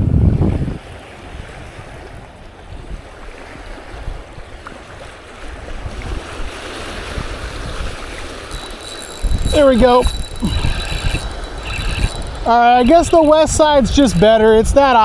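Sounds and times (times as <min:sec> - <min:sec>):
shallow water: 0:00.0 - 0:15.0
wind buffeting the microphone: 0:00.0 - 0:15.0.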